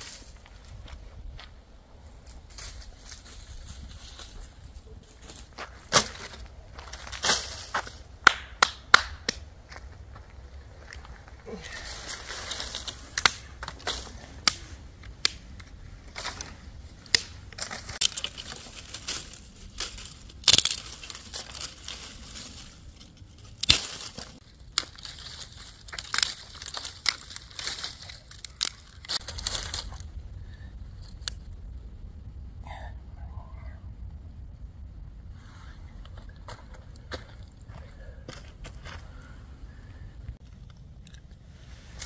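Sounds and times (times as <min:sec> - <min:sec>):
crackly rustle: 0:00.0 - 0:08.1, 0:09.6 - 0:42.0
loud cracks: 0:08.2 - 0:09.4, 0:12.6 - 0:15.7, 0:17.0 - 0:21.8, 0:23.6 - 0:29.9
crunching and snapping of dry material: 0:10.8 - 0:30.3.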